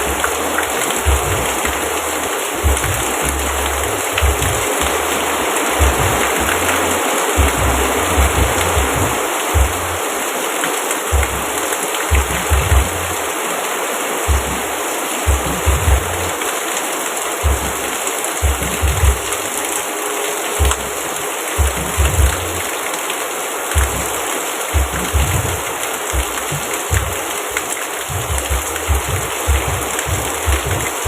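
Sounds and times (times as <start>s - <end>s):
short low thumps: 0.0s - 10.0s, 11.1s - 11.5s, 12.1s - 13.1s, 14.3s - 14.6s, 15.3s - 16.3s, 17.4s - 17.8s, 18.4s - 19.4s, 20.6s - 20.9s, 21.6s - 22.6s, 23.7s - 24.2s, 24.8s - 31.0s
steady rain falling: 0.0s - 31.0s.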